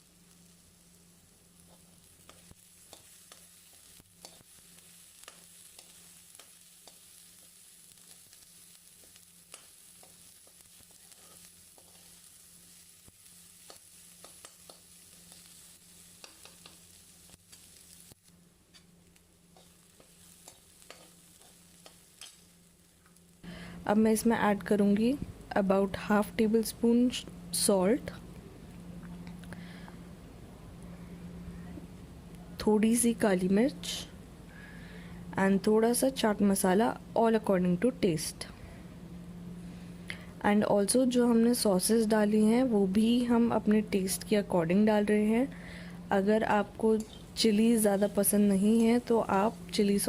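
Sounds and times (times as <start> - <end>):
vegetables sizzling in oil: 0.0 - 25.1, 40.7 - 50.0
low steady hum: 0.0 - 50.0.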